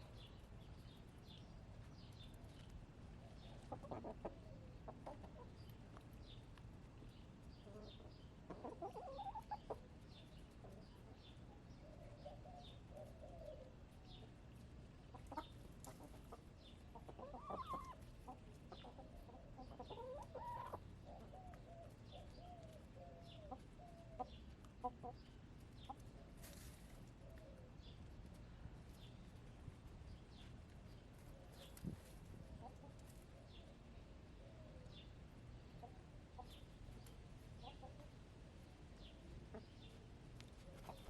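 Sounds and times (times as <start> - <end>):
hens clucking: 3.4 - 5.7, 7.6 - 9.9, 15.0 - 27.5, 35.8 - 38.2, 39.0 - 39.9, 40.6 - 41.0.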